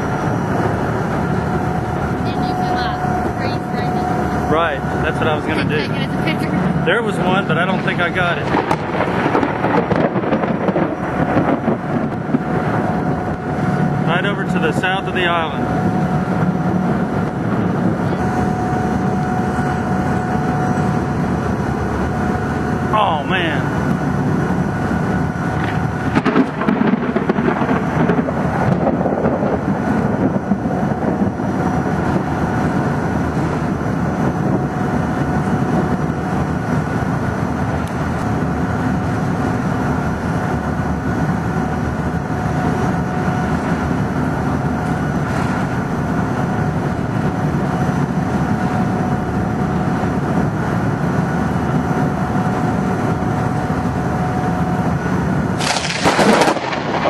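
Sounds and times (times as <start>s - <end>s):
background hum: 0.0s - 57.0s
heavy rain: 0.0s - 57.0s
thunder rumbling: 0.0s - 57.0s
sharp thunder crack: 6.5s - 19.1s, 26.0s - 32.6s, 55.6s - 57.0s.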